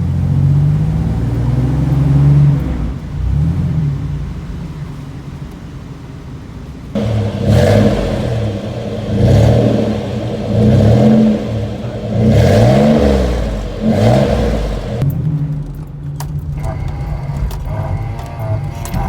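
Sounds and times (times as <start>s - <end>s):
engine exhaust revving: 0.0s - 4.6s, 7.0s - 15.1s.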